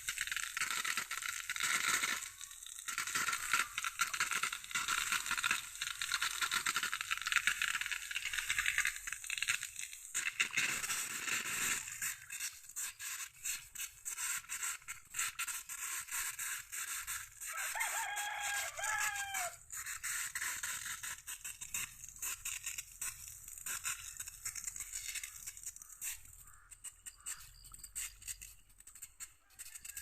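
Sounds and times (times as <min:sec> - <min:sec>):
rooster crowing: 0:17.5 - 0:19.6.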